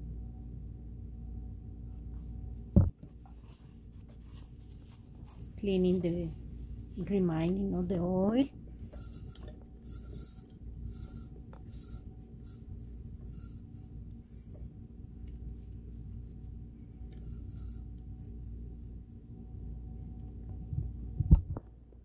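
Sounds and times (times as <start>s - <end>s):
steady low hum: 0.0s - 22.0s
cloth rubbing machine parts: 2.0s - 19.2s.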